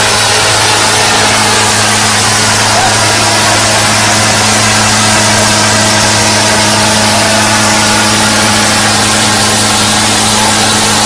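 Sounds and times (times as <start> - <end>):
heavy vehicle engine running: 0.0 - 11.0.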